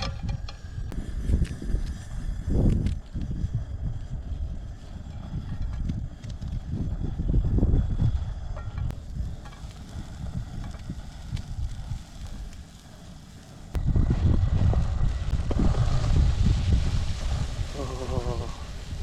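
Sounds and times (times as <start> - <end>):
wind buffeting microphone: 0.0 - 19.0
onion sizzling in a pan: 6.7 - 19.0.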